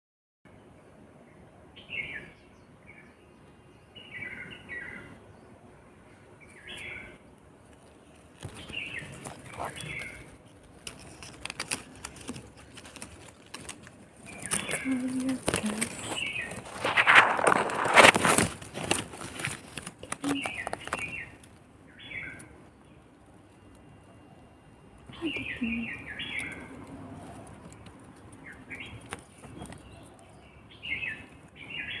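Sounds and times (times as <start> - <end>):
rustling: 7.6 - 21.7
baby birds chirping: 8.4 - 16.9, 18.9 - 22.6, 25.0 - 32.0.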